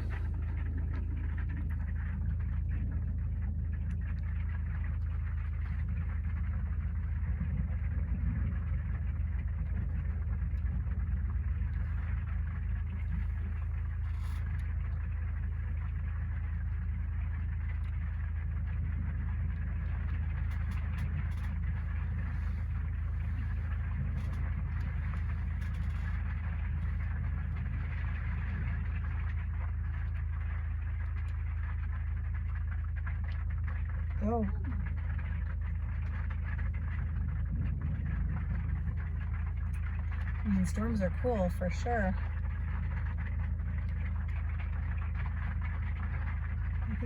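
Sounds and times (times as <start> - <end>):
storm wind rumble: 0.0 - 14.6, 18.8 - 29.7, 34.1 - 47.0
storm wind and rain: 34.2 - 41.2.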